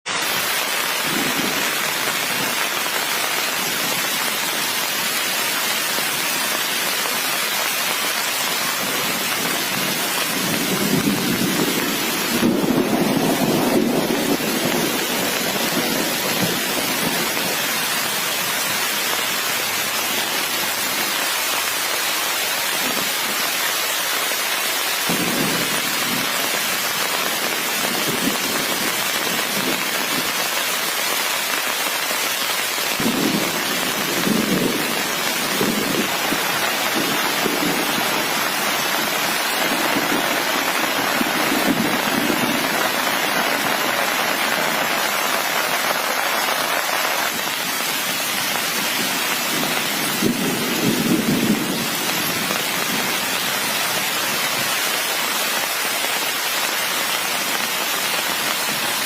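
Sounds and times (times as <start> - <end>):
steady rain falling: 0.0 - 59.0
thunder rumbling: 8.6 - 18.2, 25.1 - 30.4, 32.9 - 53.2.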